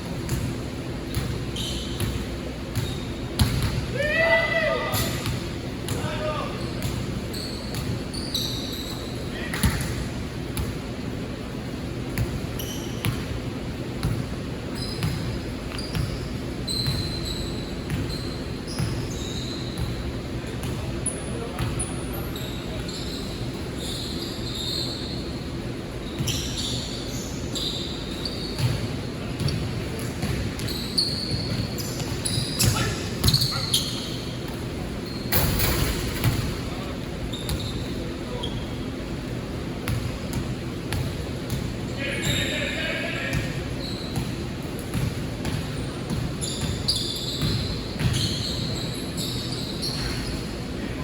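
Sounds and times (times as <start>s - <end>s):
sneakers squeaking on floor: 0.0s - 11.1s, 12.0s - 51.0s
basketball bouncing: 2.0s - 3.8s, 28.6s - 30.7s, 39.8s - 41.7s, 44.2s - 48.3s.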